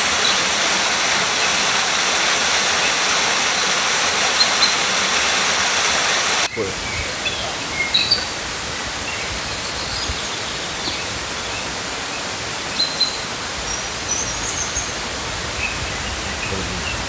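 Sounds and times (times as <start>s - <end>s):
steady rushing noise: 0.0s - 12.7s
small birds chirping: 0.0s - 17.0s.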